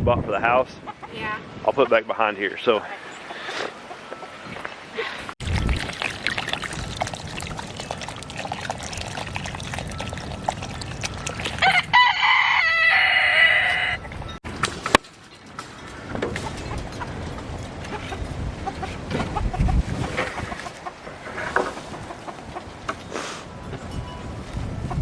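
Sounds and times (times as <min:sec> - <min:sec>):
rooster crowing: 0:11.6 - 0:14.1.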